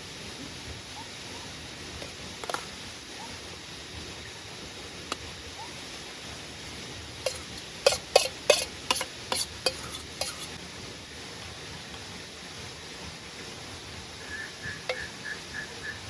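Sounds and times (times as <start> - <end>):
steady hiss: 0.0 - 16.0
utensil clinking on metal pot: 7.2 - 10.6.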